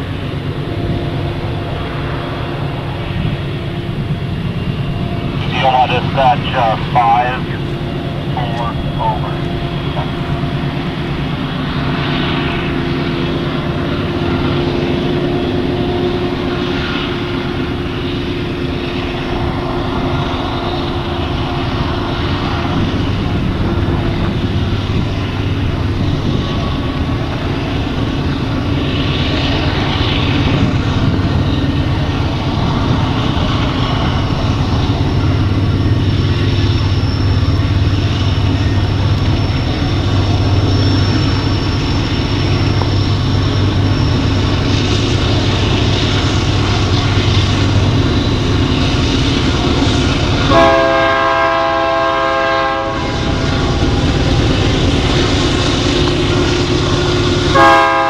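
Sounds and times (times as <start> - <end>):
diesel locomotives droning: 0.0 - 58.0
locomotive air horn: 50.5 - 53.3, 57.5 - 58.0.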